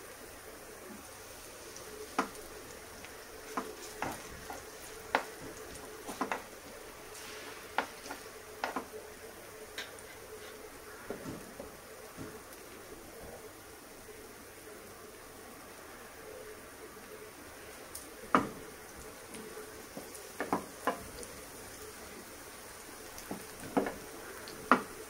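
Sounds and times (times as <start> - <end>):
patties sizzling in oil: 0.0 - 25.0
patty placed into hot oil: 3.0 - 8.9.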